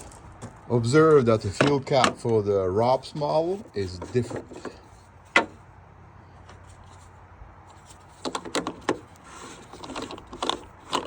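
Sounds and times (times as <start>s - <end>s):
fuel cap scraping: 1.3s - 5.6s, 7.7s - 11.0s
fuel cap clicking and knocking: 8.2s - 9.1s, 9.7s - 11.0s.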